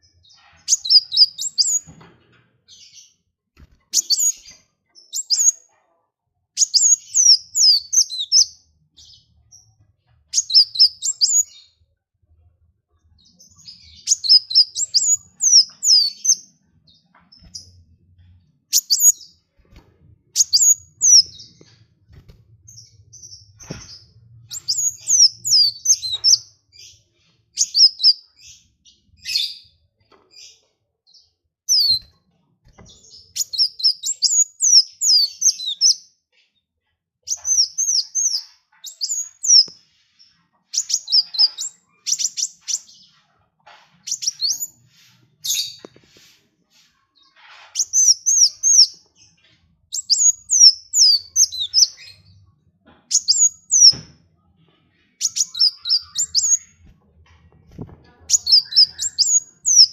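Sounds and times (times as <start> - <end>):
songbird twittering: 0.6 - 1.9, 10.3 - 11.6, 13.5 - 16.5, 20.4 - 21.6, 24.5 - 26.5, 49.9 - 52.3, 53.1 - 54.0, 55.2 - 56.9, 58.3 - 59.9.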